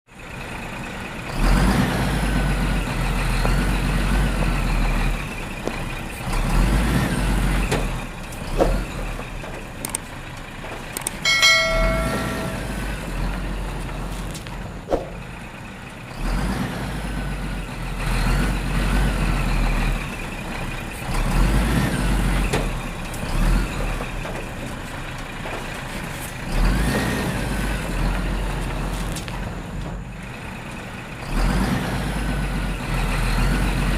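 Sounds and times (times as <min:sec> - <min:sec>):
heavy vehicle engine: 0:00.1 - 0:33.9
clicks: 0:11.0 - 0:12.8.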